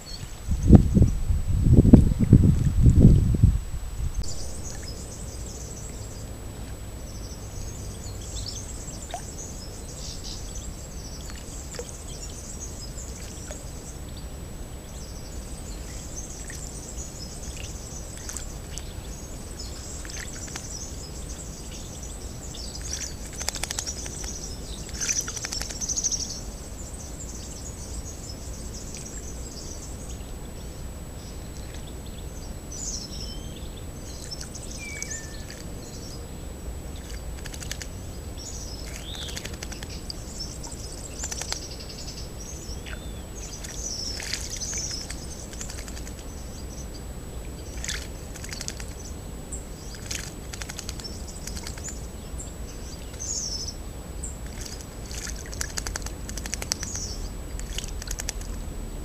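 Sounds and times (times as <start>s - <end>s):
low background noise: 0.0s - 59.0s
small birds chirping: 4.0s - 58.7s
bird splashing in puddle: 22.8s - 25.9s, 37.0s - 38.0s, 38.8s - 41.7s, 42.9s - 46.2s, 47.7s - 49.0s, 49.9s - 51.9s, 54.4s - 58.6s.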